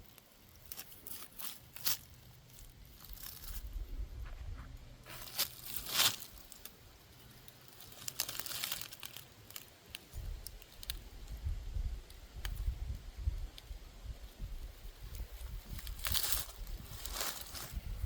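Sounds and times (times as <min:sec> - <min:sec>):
irregular crackling and crinkling: 0:00.0 - 0:18.0
low rumble: 0:03.4 - 0:05.3.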